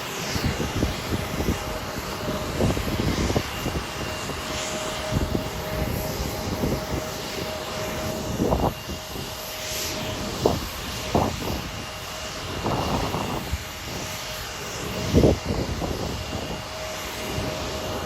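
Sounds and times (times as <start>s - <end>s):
jet engines whining: 0.0s - 18.0s.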